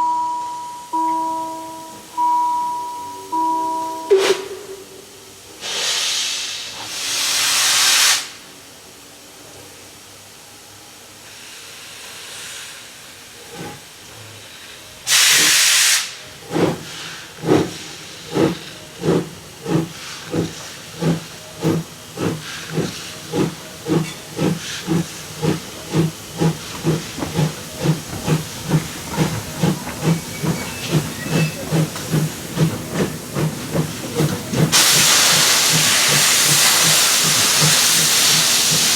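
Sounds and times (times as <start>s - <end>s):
steam hissing: 4.1s - 8.8s, 11.2s - 38.9s
steam locomotive exhaust chuffs: 11.2s - 38.9s.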